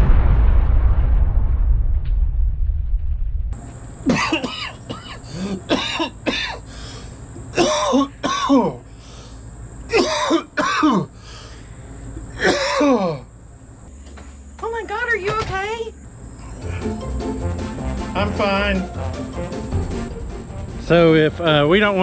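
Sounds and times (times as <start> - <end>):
low boom rumble: 0.0 - 3.6
person coughing and hacking: 4.1 - 6.6, 7.6 - 8.7
high-pitched ringing tone: 13.9 - 17.8.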